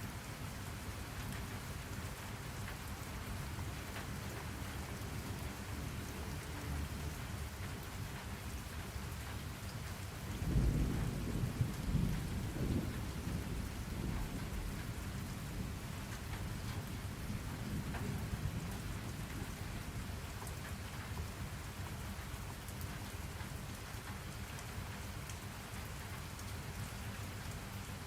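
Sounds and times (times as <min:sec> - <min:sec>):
steady rain falling: 0:00.0 - 0:28.0
thunder rumbling: 0:10.3 - 0:20.1.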